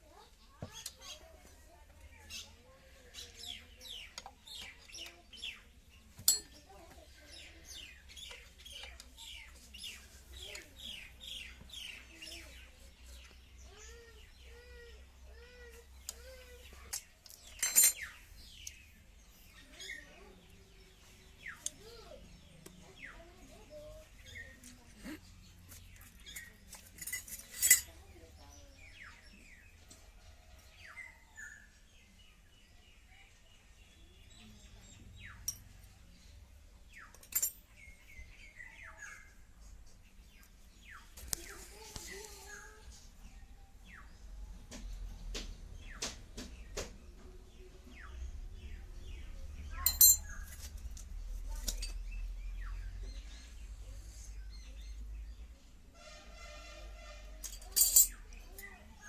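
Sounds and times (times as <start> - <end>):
birds chirping: 0.0 - 59.0
light metal clinks: 6.2 - 6.9, 16.8 - 18.1, 25.9 - 28.0, 37.0 - 37.9, 49.8 - 50.7, 51.5 - 52.1, 57.4 - 58.7.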